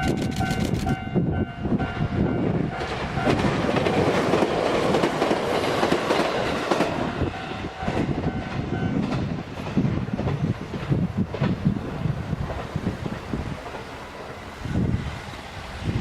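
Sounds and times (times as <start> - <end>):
electric train rumbling: 0.0 - 16.0
wheels clacking over rail joints: 2.7 - 14.6.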